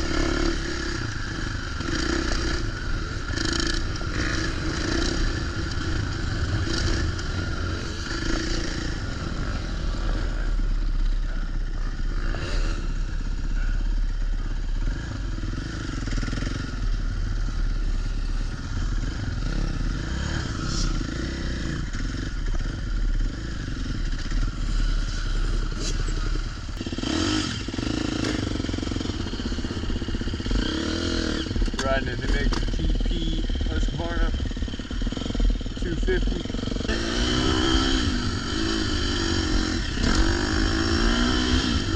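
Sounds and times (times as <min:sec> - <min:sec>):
dirt bike engine revving: 0:00.0 - 0:41.9
clatter: 0:31.5 - 0:33.4.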